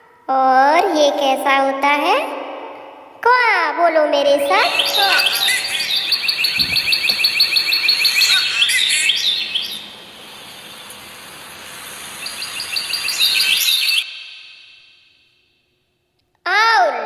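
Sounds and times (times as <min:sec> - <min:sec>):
bird chirping rapidly: 0:04.5 - 0:15.2.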